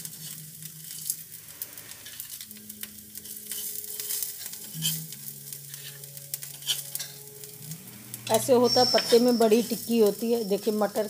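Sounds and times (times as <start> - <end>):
metal spatula scraping griddle: 0.0 - 1.2, 3.2 - 7.5, 8.2 - 10.1
patties sizzling on griddle: 0.0 - 11.0.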